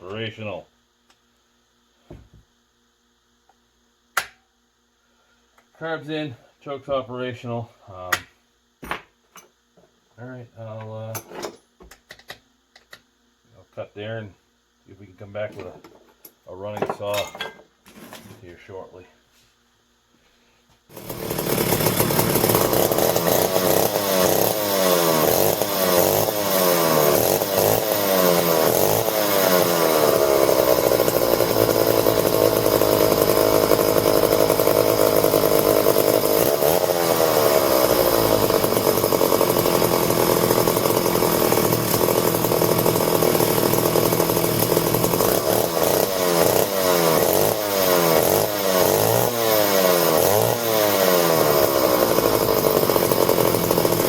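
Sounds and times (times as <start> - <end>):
chainsaw engine revving: 20.9 - 54.0.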